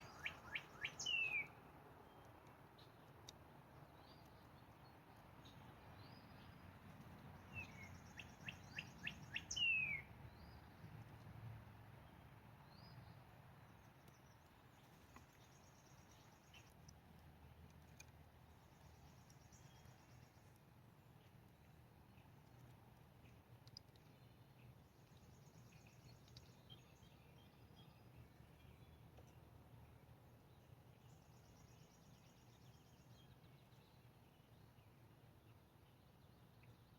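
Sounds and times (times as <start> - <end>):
birds calling: 0.0 - 1.5
faint high chirps and ticks: 0.0 - 11.8, 12.9 - 36.9
faint outdoor hiss: 0.0 - 36.9.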